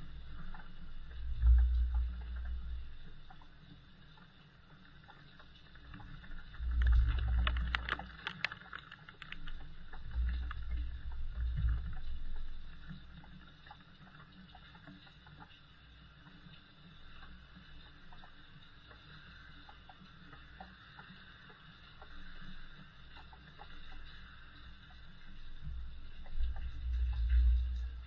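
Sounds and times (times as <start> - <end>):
light rain hiss: 0.0 - 28.0
low rumble: 1.0 - 3.2, 6.2 - 8.2, 9.6 - 12.8, 25.7 - 28.0.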